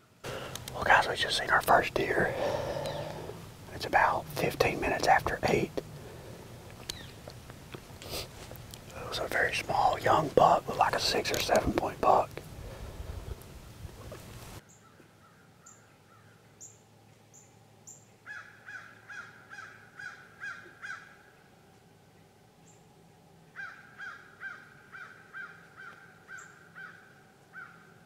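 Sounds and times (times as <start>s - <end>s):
small bird chirping: 6.7s - 7.4s.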